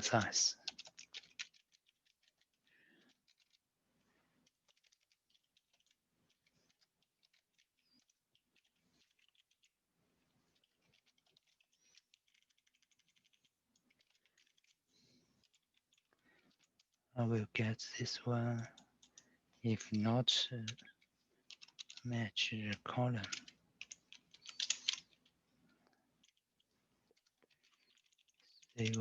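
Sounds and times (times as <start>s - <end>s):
typing on computer keyboard: 0.1s - 3.6s, 4.4s - 9.7s, 10.6s - 14.8s, 18.6s - 22.1s, 22.7s - 25.3s, 27.1s - 29.0s.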